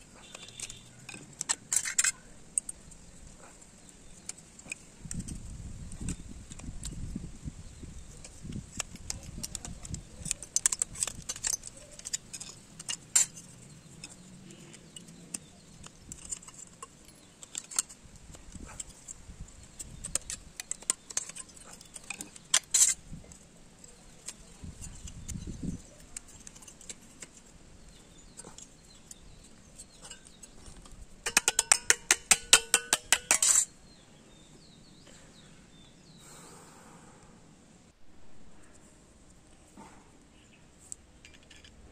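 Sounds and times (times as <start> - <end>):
metal parts clinking and tapping: 0.1 - 3.1, 8.1 - 33.8, 40.9 - 41.8
rattling clicks with metallic ring: 31.2 - 33.7.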